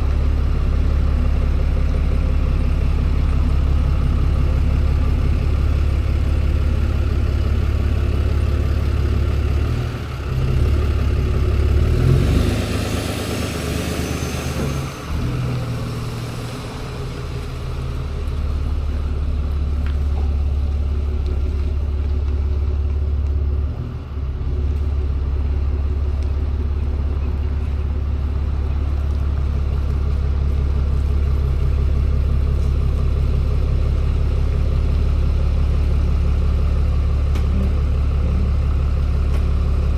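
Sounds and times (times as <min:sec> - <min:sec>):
truck engine drone: 0:00.0 - 0:39.9.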